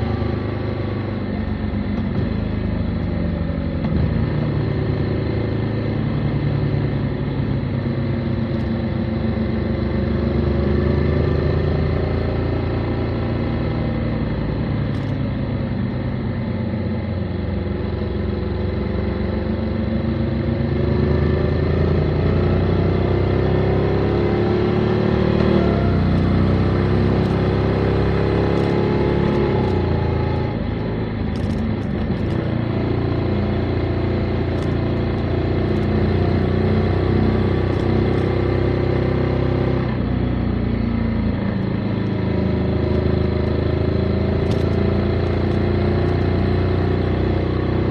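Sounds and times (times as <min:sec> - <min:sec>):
motorcycle engine revving: 0:16.8 - 0:47.9.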